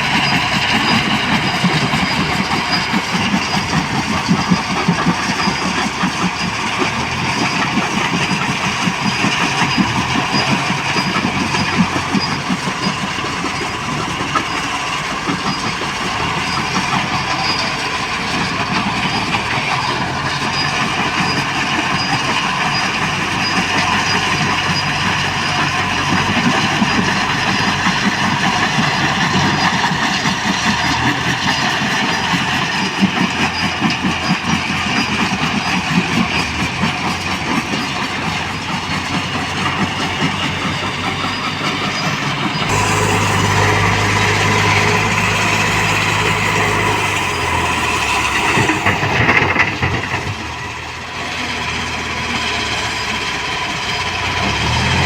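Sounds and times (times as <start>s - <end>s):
diesel engine clattering: 0.0s - 55.0s
deep hum: 42.7s - 50.2s.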